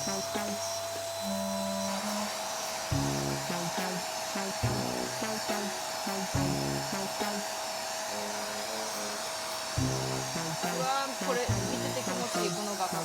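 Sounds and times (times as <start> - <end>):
small electric motor whining: 0.0 - 13.0
background music: 2.9 - 7.6, 9.8 - 13.0.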